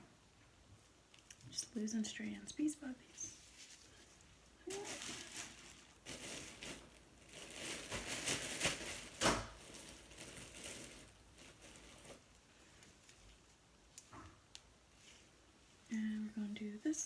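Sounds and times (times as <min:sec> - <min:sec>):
sharp crackle: 0:04.6 - 0:12.2.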